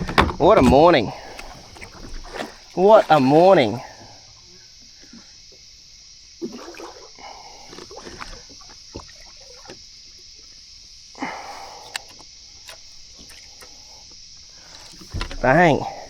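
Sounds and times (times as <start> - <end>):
water splashing: 0.0 - 4.2, 6.4 - 10.7
insects droning: 0.0 - 16.0.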